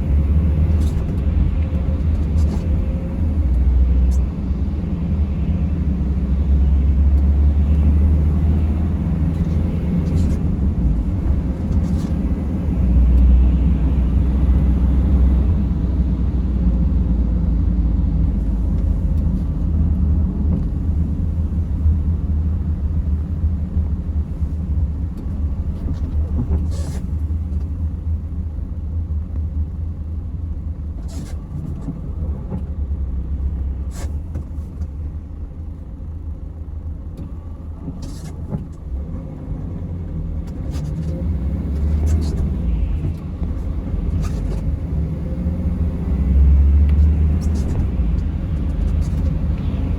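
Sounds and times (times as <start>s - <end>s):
van engine and road noise: 0.0s - 49.9s.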